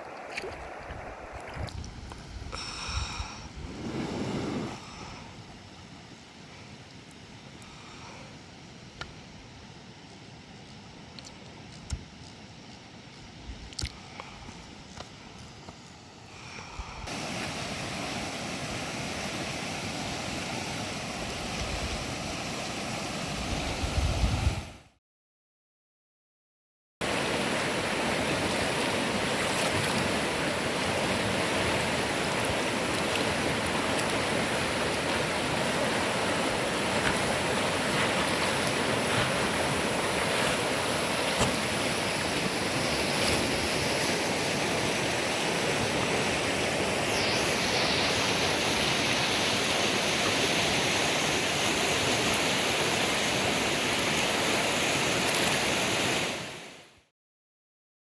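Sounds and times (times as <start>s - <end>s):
river water rushing: 0.0s - 1.7s, 17.1s - 23.8s, 27.0s - 56.8s
wind rumbling on microphone: 0.0s - 5.3s, 21.1s - 24.9s.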